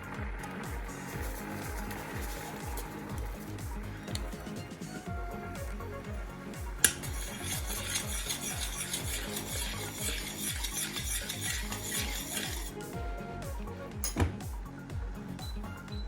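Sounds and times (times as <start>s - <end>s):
background music with beat: 0.0s - 16.0s
utensil scraping in bowl: 6.8s - 12.9s.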